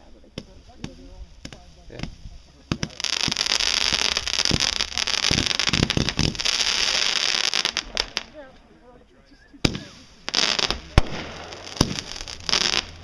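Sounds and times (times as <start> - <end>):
fireworks crackling: 0.0 - 8.6, 9.6 - 13.0
fireworks bangs: 0.3 - 8.4, 9.6 - 13.0.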